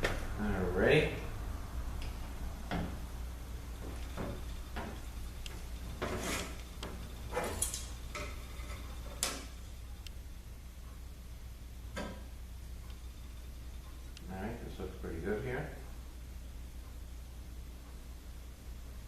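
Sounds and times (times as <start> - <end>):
steady low hum: 0.0 - 19.0
metal scraping: 5.8 - 9.2.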